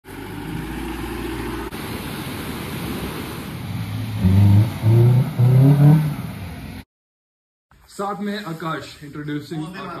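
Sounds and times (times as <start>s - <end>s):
vehicle engine revving: 3.6s - 6.8s.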